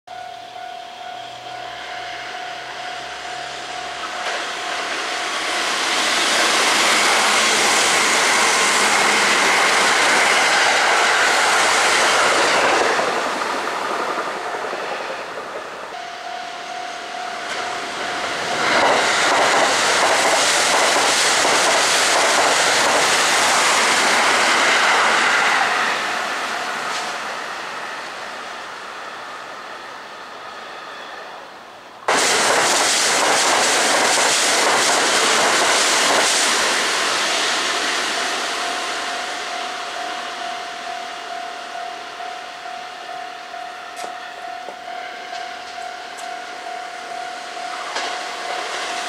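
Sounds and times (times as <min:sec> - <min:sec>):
train wheels running on rails: 0:00.1 - 0:49.0
steady single tone: 0:15.9 - 0:18.8.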